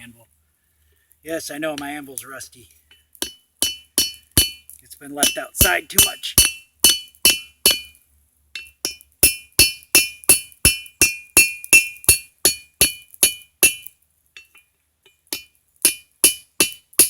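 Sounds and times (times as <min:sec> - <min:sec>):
hammer striking metal on anvil: 0:03.2 - 0:08.0, 0:08.6 - 0:14.6, 0:15.3 - 0:17.0.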